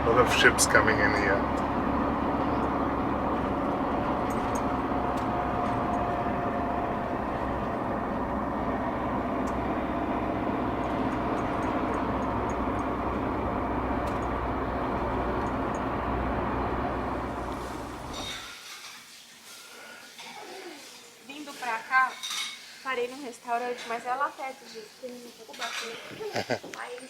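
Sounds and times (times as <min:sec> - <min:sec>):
car road and engine noise: 0:00.0 - 0:18.5.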